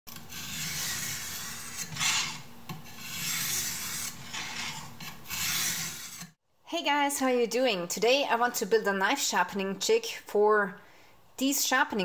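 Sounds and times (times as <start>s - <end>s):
knife rasping on sharpening stone: 0.3s - 6.4s.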